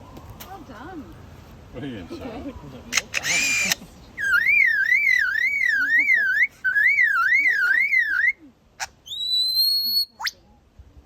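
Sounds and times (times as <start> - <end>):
bird mimicking electronic alarm: 3.2 - 8.3.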